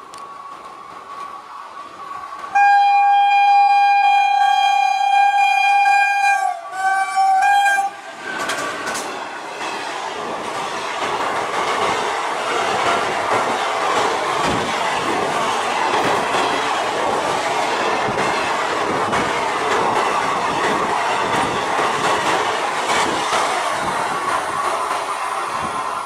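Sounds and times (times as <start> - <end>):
locomotive horn blasts: 2.5 - 8.0
wheels clacking over rail joints: 8.2 - 25.7.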